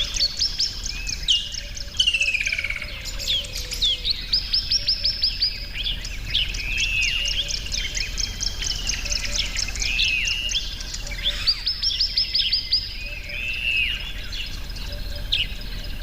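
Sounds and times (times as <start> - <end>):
slurred bird call: 6.4 - 12.3.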